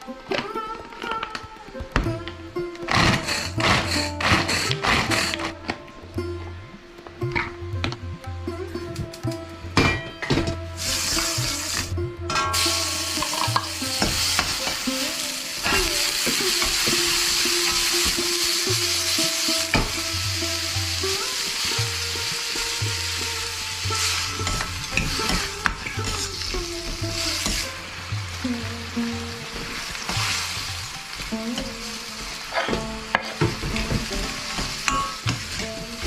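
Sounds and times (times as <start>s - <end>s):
spatula scraping a pan: 2.9s - 5.6s, 10.8s - 20.0s, 21.0s - 27.9s
chicken sizzling in a pan: 3.0s - 5.5s, 10.8s - 36.0s.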